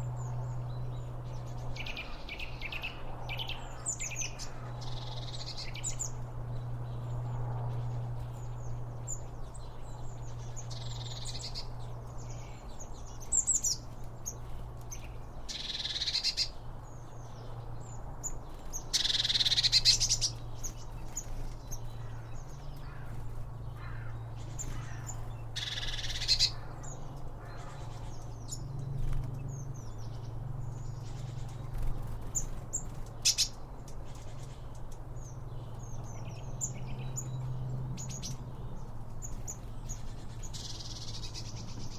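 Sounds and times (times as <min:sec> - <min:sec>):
small songbirds chirping: 0:00.0 - 0:41.9.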